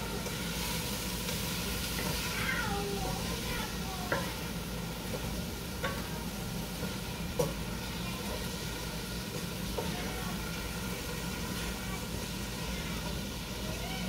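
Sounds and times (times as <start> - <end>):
onion and garlic sizzling in oil: 0.0 - 14.0
wooden spoon knocking on pan: 4.1 - 4.4, 5.1 - 6.2, 6.8 - 7.6, 9.3 - 10.0.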